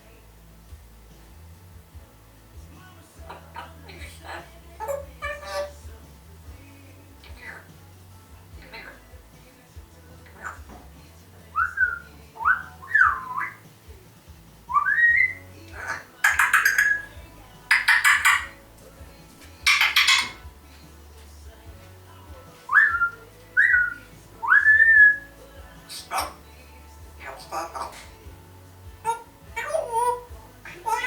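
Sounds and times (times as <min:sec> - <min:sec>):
parrot squawks: 0:03.3 - 0:05.9, 0:10.3 - 0:10.7, 0:14.7 - 0:18.6, 0:19.6 - 0:20.4, 0:22.7 - 0:25.3, 0:25.9 - 0:26.4, 0:27.2 - 0:28.2, 0:29.0 - 0:31.0
parrot whistling: 0:04.8 - 0:05.8, 0:11.6 - 0:13.6, 0:14.7 - 0:18.6, 0:19.6 - 0:20.4, 0:22.7 - 0:25.3.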